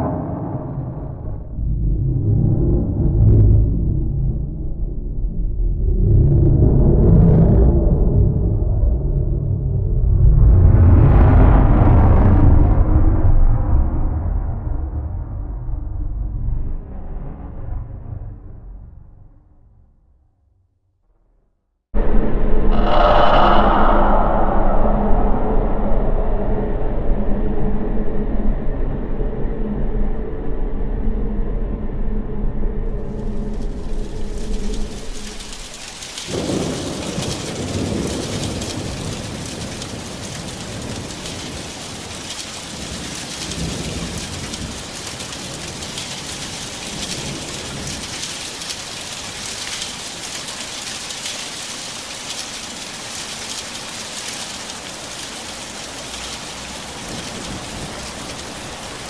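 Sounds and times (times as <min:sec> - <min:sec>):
low rumble with hum tones: 0:22.0 - 0:35.6
heavy rain: 0:22.8 - 0:26.0, 0:32.9 - 0:59.0
low rolling thunder: 0:22.8 - 0:27.3, 0:33.0 - 0:49.7, 0:55.8 - 0:59.0.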